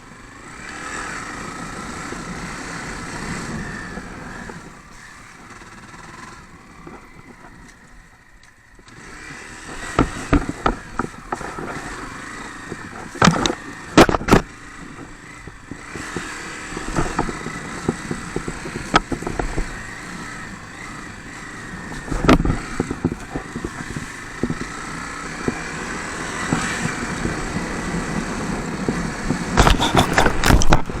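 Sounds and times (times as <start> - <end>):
dirt bike engine running: 0.0 - 31.0
sharp knocks and rattles: 9.7 - 31.0.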